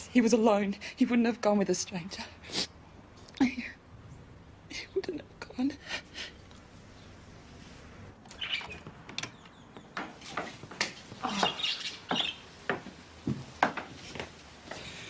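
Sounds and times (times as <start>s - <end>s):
small bird chirping and squawking: 8.3s - 8.8s, 11.2s - 12.5s.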